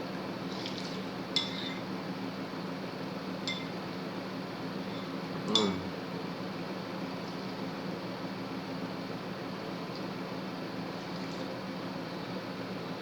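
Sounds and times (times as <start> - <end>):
utensil clinking against bowl: 3.4 - 3.8.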